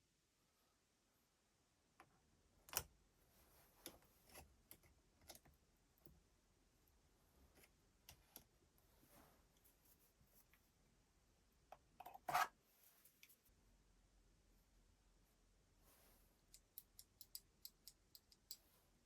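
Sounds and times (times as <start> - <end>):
small hard parts clicking and tapping: 16.4 - 18.7.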